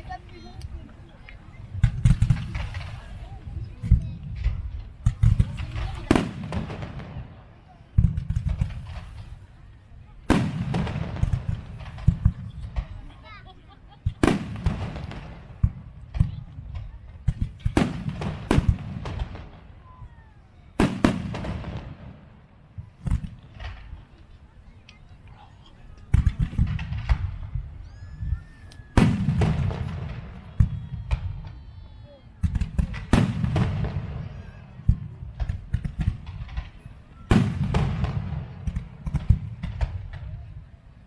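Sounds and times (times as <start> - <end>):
fireworks bursting bangs: 0.0 - 24.8, 26.0 - 41.0
falling firework whistle: 27.8 - 32.1.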